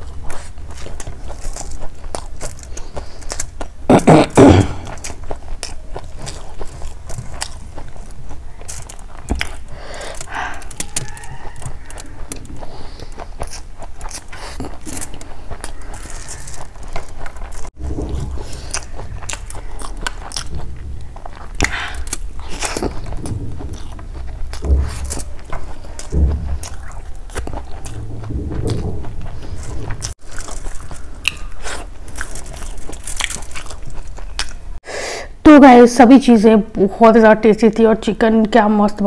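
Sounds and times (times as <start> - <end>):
wet chewing and lip smacks: 4.8 - 34.6.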